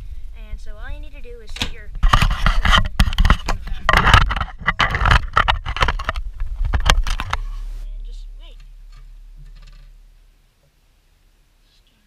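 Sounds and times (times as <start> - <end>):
clattering and rattling knocks: 1.6 - 7.6, 8.5 - 10.0.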